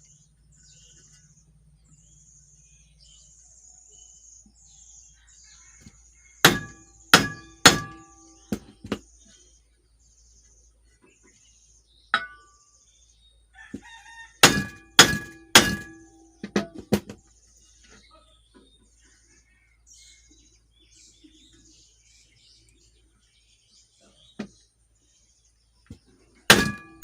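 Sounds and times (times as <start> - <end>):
hammer striking metal shaft: 6.4 - 8.7, 12.2 - 12.6, 14.4 - 17.1, 26.5 - 27.0.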